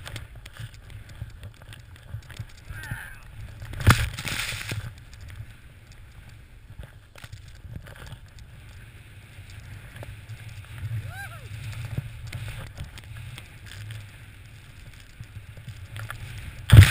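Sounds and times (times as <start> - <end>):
scattered clicks: 0.0 - 6.4
snowboard riding through powder: 0.0 - 16.9
wind rumble on microphone: 0.0 - 16.9.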